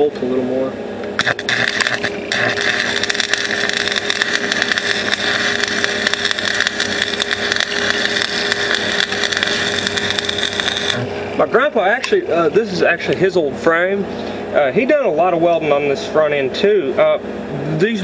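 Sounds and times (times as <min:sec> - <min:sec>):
stick welder arc crackling hiss: 0:01.2 - 0:11.2.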